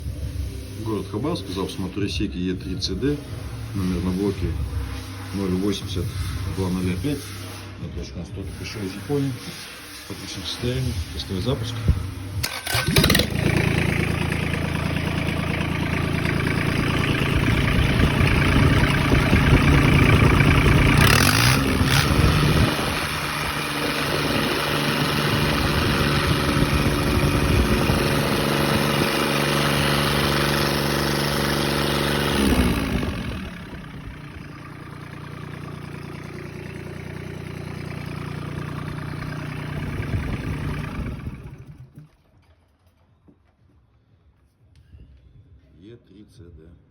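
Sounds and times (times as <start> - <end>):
diesel engine clattering: 11.4 - 42.1.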